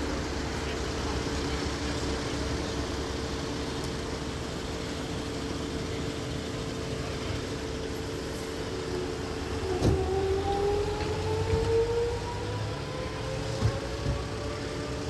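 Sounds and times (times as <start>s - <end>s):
vehicle engine humming: 0.0s - 15.0s
rising whine: 8.6s - 15.0s.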